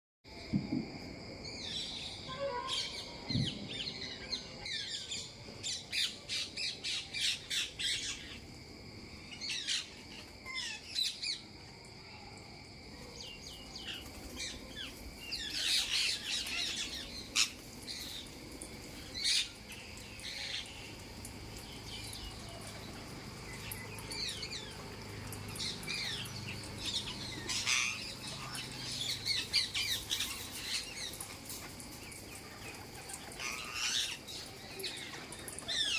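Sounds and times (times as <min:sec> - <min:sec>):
faint steady high hum: 0:03.0 - 0:35.9
parrots squawking: 0:26.8 - 0:30.9.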